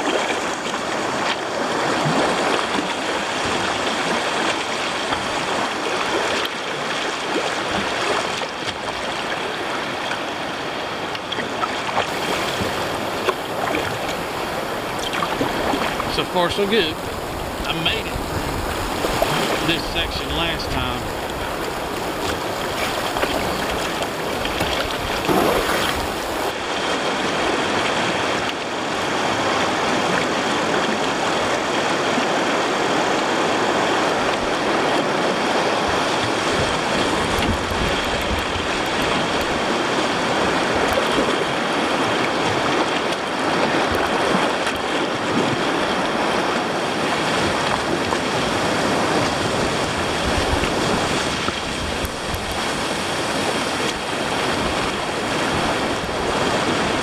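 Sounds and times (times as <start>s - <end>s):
whitewater rushing: 11.6s - 57.0s.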